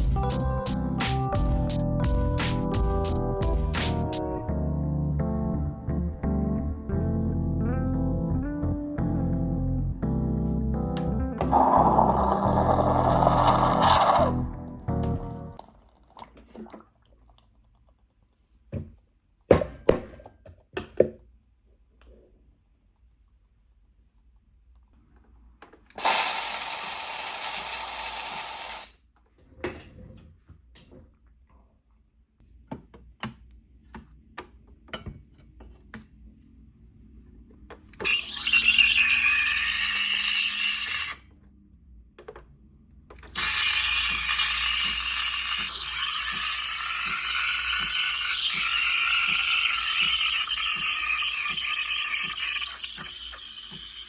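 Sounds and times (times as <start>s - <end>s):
squealing tones of steaming milk: 11.5s - 14.4s, 26.0s - 28.9s, 38.0s - 41.2s, 43.4s - 54.0s
steam wand hissing: 26.0s - 28.9s, 43.4s - 54.0s.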